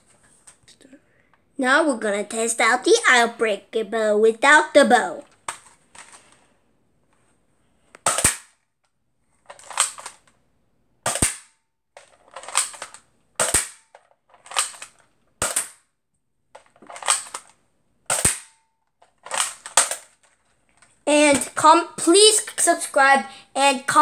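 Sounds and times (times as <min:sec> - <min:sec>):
hard click of blaster: 0:08.0 - 0:08.6, 0:11.1 - 0:11.5, 0:18.1 - 0:18.6
toy dart blaster firing: 0:08.1 - 0:08.6, 0:11.1 - 0:11.6, 0:13.4 - 0:13.9, 0:15.4 - 0:15.8, 0:18.1 - 0:18.6.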